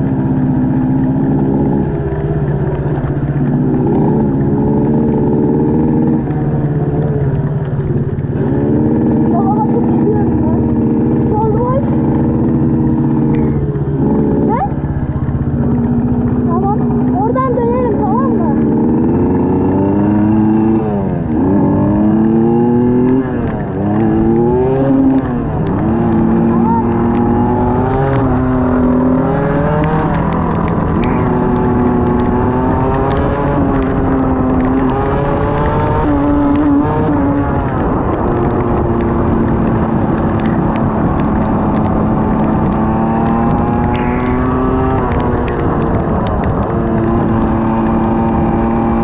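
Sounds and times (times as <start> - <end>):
engine accelerating through gears: 0.0 - 49.0
sharp raindrop ticks: 26.9 - 48.9
motor-like drone: 39.7 - 49.0.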